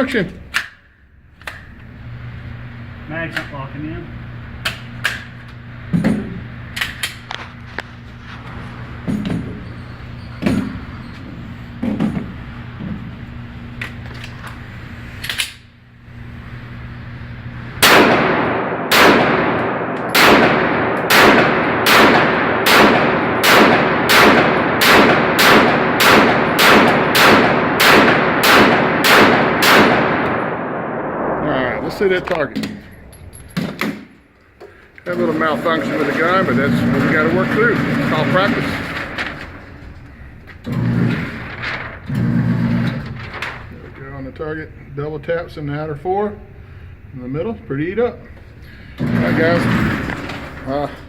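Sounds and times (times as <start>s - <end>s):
pistol handling clicks and clanks: 0.5s - 1.8s, 15.2s - 15.7s
pistol shots ringing out: 17.8s - 34.1s.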